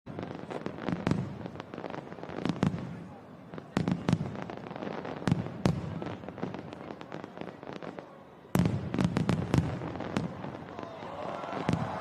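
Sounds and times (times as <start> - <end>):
crackling firework pops: 0.1 - 12.0
loud firework bangs: 8.5 - 12.0.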